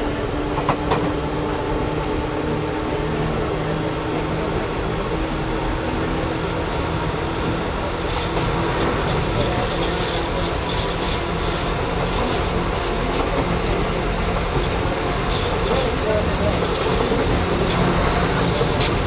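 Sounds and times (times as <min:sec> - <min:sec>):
train running rumble: 0:00.0 - 0:19.0
short high-pitched squeals: 0:09.6 - 0:12.6, 0:15.1 - 0:17.2.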